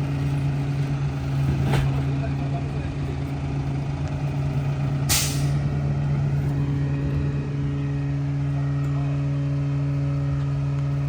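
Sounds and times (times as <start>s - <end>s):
garbage truck diesel engine running: 0.0s - 11.0s
hiss of released air: 5.1s - 5.6s.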